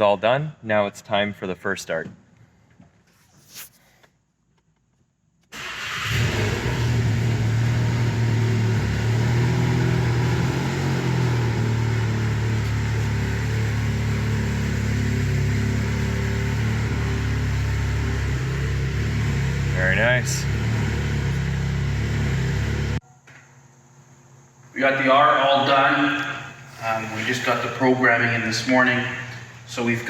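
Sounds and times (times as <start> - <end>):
car engine starting and idling: 5.5 - 23.0, 25.8 - 30.0.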